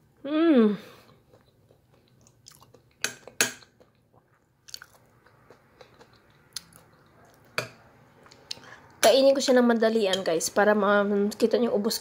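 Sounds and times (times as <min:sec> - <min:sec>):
person chewing: 0:00.9 - 0:08.7.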